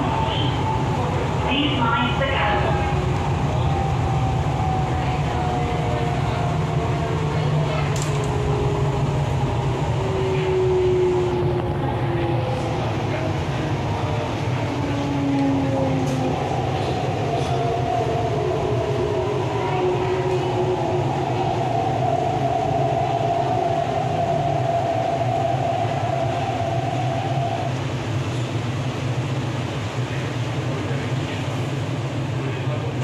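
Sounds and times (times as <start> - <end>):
train rumble: 0.0 - 33.0.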